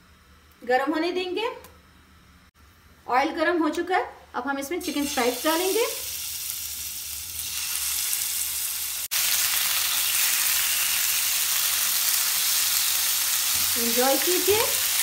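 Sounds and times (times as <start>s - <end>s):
chicken sizzling in hot oil: 4.8s - 15.0s.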